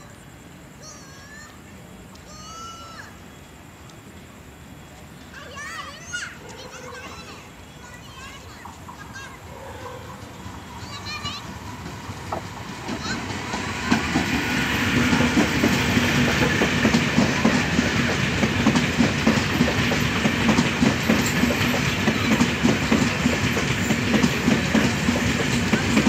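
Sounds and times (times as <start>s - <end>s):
train wheels clattering: 10.0s - 26.0s.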